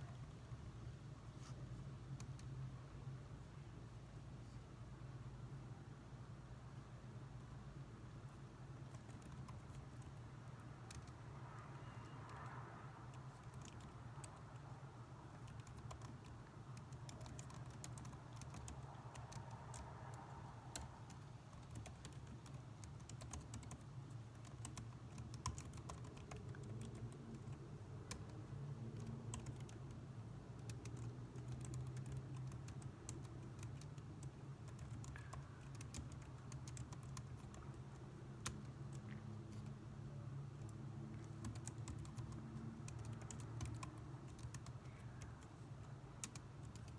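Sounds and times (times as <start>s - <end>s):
low background hum: 0.0s - 46.9s
keyboard typing clicks: 8.8s - 14.7s, 15.3s - 30.0s, 30.6s - 39.8s, 40.6s - 46.9s.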